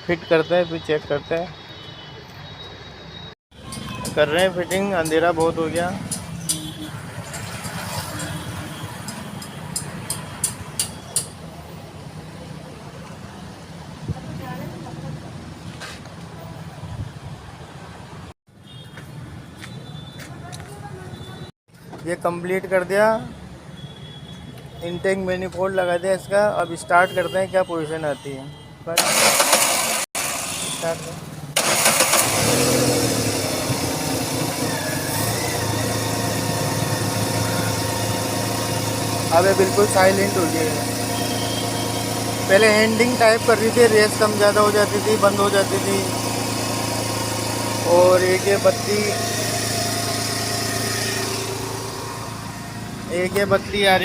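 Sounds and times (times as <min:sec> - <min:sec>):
sharp metallic clicks: 0:03.6 - 0:11.4
car engine idling: 0:29.0 - 0:54.0.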